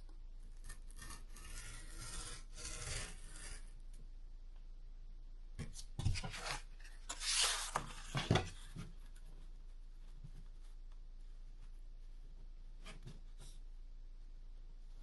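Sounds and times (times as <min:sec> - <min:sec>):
cardboard rubbing and scraping: 0:01.0 - 0:03.7, 0:06.0 - 0:08.9.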